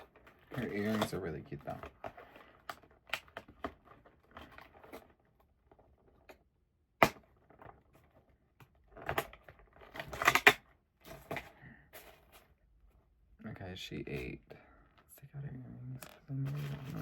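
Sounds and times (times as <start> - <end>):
doll packaging clicks and rattles: 7.1 - 12.6.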